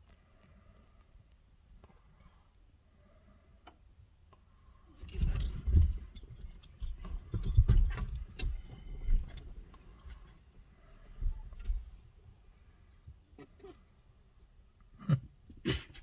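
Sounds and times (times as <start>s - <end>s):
low rumble of handling noise: 0.0s - 13.3s
metal jingling: 5.1s - 8.8s.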